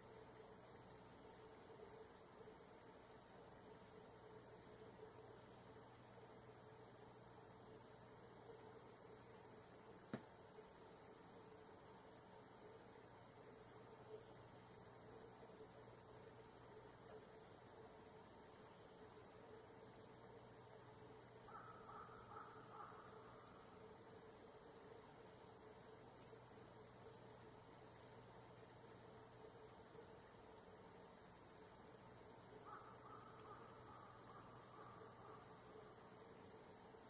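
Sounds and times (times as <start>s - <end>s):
fainter lower insect call: 0.0s - 37.0s
cicadas trilling: 6.4s - 15.6s, 19.0s - 37.0s.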